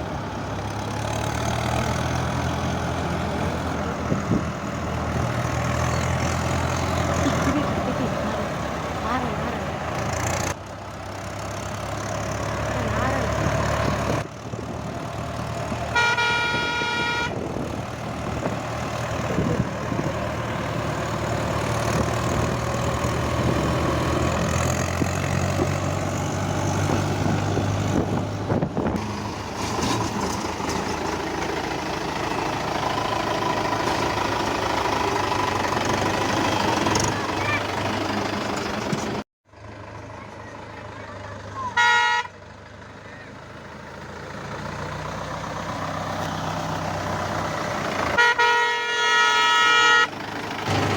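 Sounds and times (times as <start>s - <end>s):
tractor engine running: 0.0s - 50.9s
vehicle horn: 15.9s - 17.5s, 41.6s - 42.4s, 48.1s - 50.2s.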